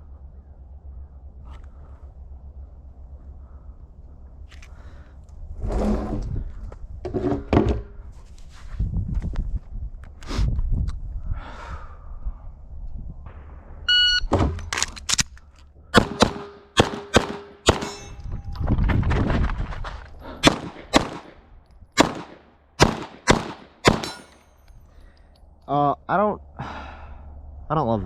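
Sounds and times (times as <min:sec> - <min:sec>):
shot timer beep: 0:13.9 - 0:14.3
pistol shots: 0:16.0 - 0:18.1, 0:20.4 - 0:21.4, 0:22.0 - 0:24.4
steel targets ringing: 0:16.0 - 0:18.5, 0:23.9 - 0:24.6.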